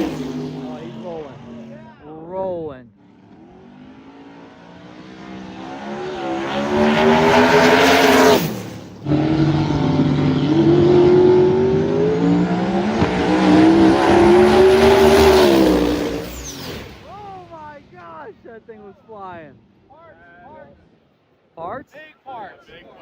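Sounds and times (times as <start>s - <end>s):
diesel pickup engine accelerating hard: 0.0s - 2.0s, 2.9s - 18.0s.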